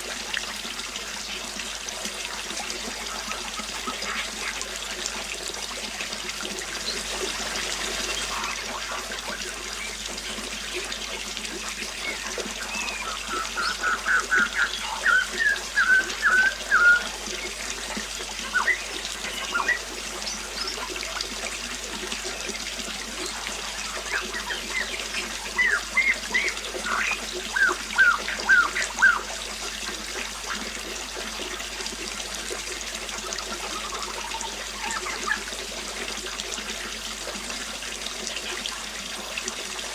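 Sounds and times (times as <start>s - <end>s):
water trickling: 0.0s - 39.9s
bird chirping: 12.0s - 17.6s, 18.4s - 20.9s, 23.2s - 29.3s.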